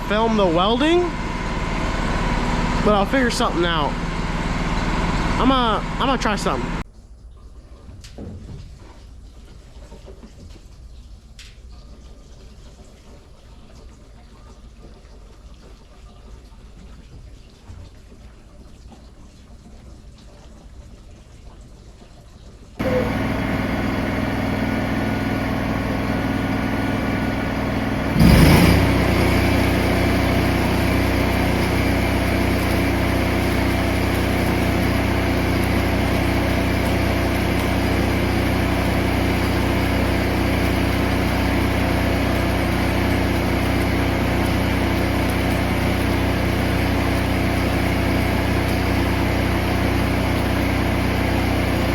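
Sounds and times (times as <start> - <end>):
welding machine engine running: 0.0 - 6.8, 22.8 - 51.9.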